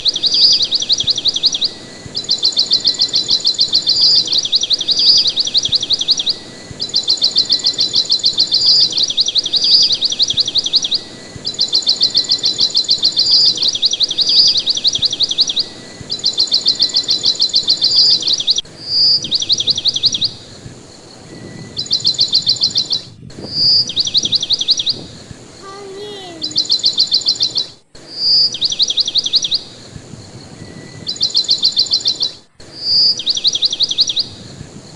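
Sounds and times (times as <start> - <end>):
bird trilling: 0.0 - 20.4, 21.8 - 29.7
bird sharp chirps: 0.0 - 20.6, 30.6 - 34.4
lower falling bird call: 0.0 - 29.9.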